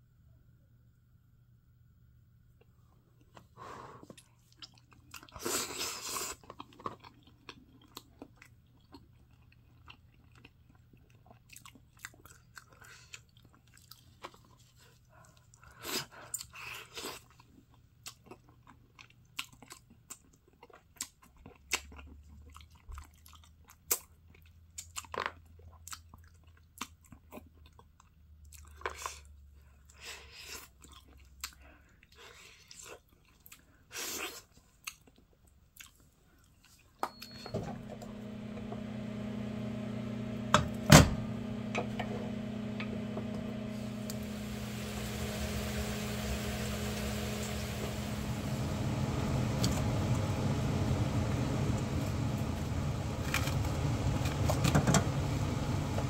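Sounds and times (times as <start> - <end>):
chewing and crunching meat: 4.1 - 37.0.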